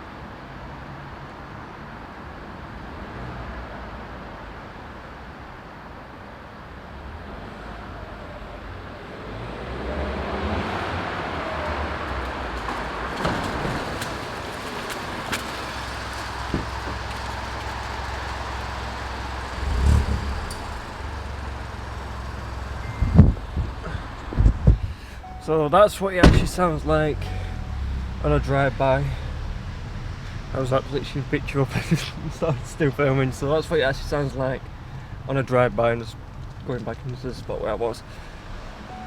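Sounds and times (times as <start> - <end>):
car engine driving past: 9.2 - 24.3
low thump: 16.4 - 17.0, 22.8 - 25.0, 26.2 - 26.8.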